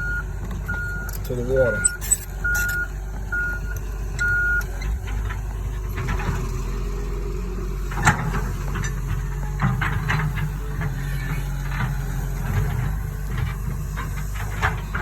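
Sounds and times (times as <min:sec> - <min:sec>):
backup alarm beeping: 0:00.0 - 0:04.7
excavator diesel engine running: 0:00.0 - 0:15.0.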